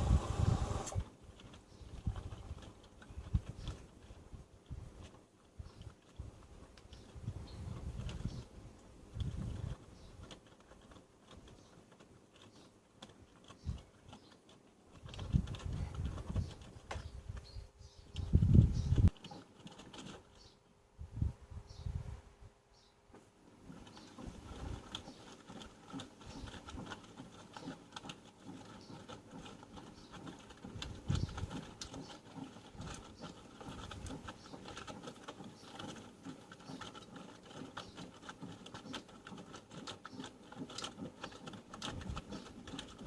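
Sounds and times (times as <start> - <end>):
faint motor hum: 0.0 - 1.1.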